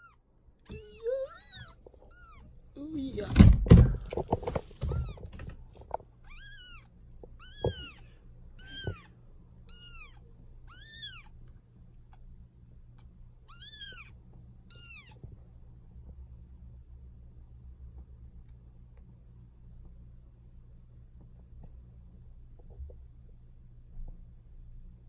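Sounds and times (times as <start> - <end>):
kitten mewing: 0.0 - 2.5, 6.2 - 9.1, 9.7 - 11.3, 13.5 - 14.1, 14.7 - 15.2
soft knocks: 3.2 - 6.0.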